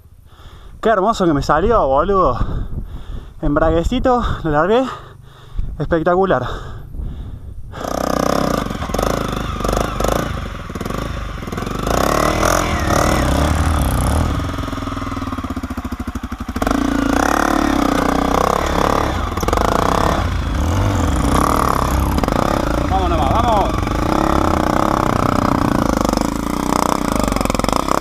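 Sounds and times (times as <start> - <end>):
motorcycle engine revving: 7.7 - 28.0.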